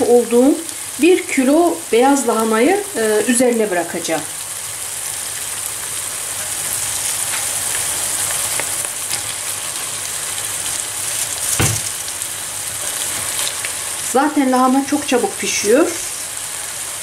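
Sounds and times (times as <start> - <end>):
food sizzling in a pan: 0.0 - 17.0
dull thump: 11.5 - 12.0
cabbage dropped into pan: 11.5 - 12.1.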